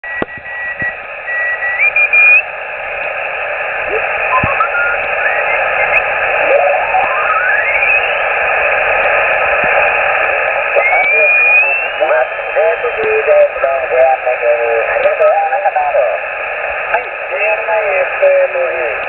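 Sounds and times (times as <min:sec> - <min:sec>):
radio static hiss: 0:00.0 - 0:19.0
heterodyne whistles sliding in pitch: 0:00.1 - 0:02.4, 0:06.7 - 0:08.1.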